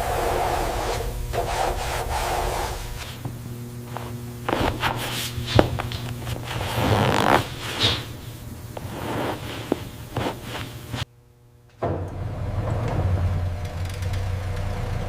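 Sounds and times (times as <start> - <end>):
rubbing or scraping: 0.0 - 11.1
steady low hum: 0.0 - 15.0.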